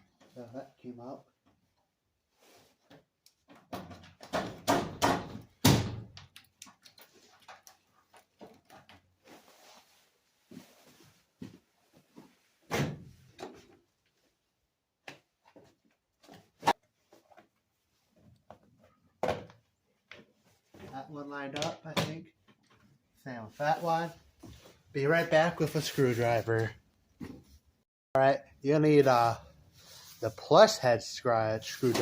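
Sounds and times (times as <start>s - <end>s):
door panel pins knocking and snapping: 3.8s - 6.0s.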